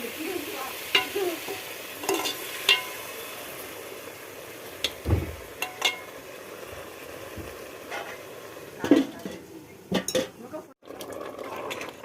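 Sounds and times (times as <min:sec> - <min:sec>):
chicken sizzling in a pan: 0:00.0 - 0:10.8
metal spatula clinking on pan: 0:02.0 - 0:03.1, 0:05.6 - 0:06.1, 0:10.0 - 0:10.4
dull thump: 0:05.0 - 0:05.4.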